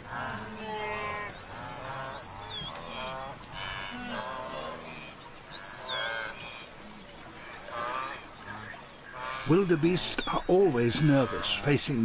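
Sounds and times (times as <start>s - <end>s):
wildebeest honking grunts: 0.0s - 5.2s, 7.4s - 11.8s.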